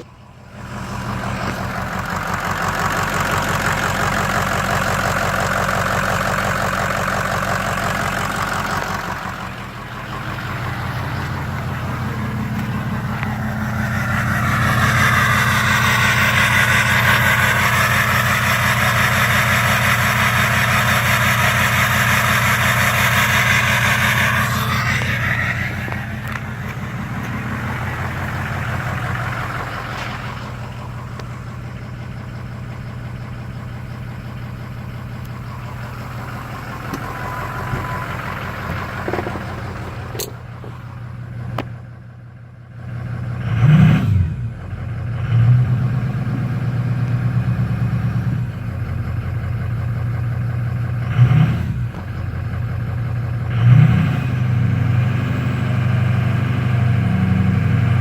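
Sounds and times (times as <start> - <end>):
car engine revving: 0.0 - 41.7, 43.1 - 48.5, 51.0 - 52.0, 53.4 - 58.0
car engine idling: 0.0 - 43.7, 44.3 - 53.6.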